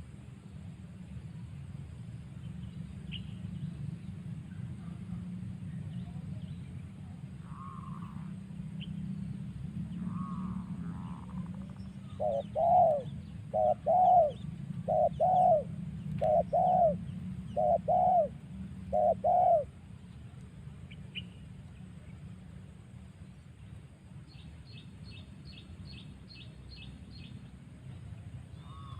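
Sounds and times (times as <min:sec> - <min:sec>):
dove cooing: 0:07.4 - 0:08.3, 0:10.0 - 0:19.7.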